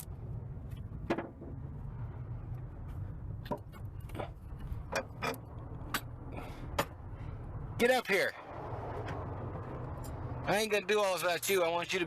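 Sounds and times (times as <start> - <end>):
low rumble: 8.4 - 10.5.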